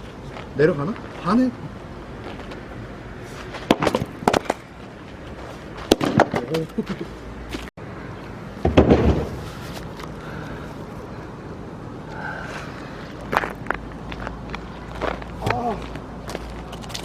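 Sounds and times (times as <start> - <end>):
axe splitting firewood: 3.6 - 4.6.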